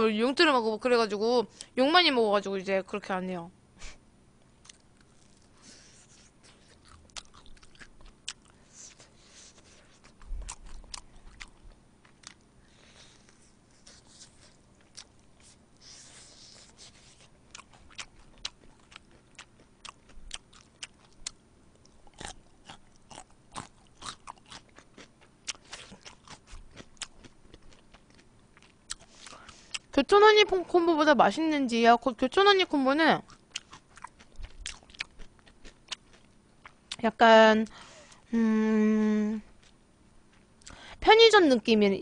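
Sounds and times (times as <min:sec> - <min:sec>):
chewing crispy fried chicken: 0:04.6 - 0:29.9, 0:33.2 - 0:37.1.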